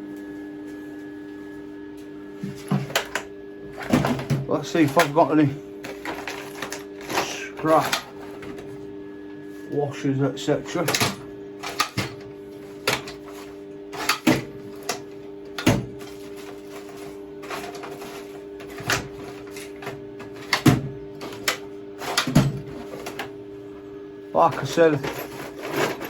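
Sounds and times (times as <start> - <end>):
steady low hum: 0.0 - 26.0
scrap metal pieces clinking: 4.7 - 8.5, 16.0 - 20.5, 24.4 - 26.0.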